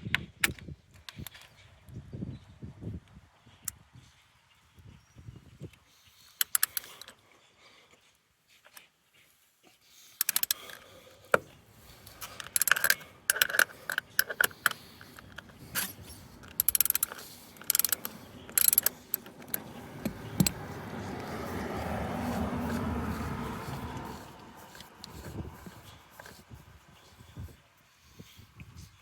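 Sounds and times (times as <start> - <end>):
ratchet tool clicking: 6.4 - 7.1, 10.2 - 10.9, 11.8 - 26.4.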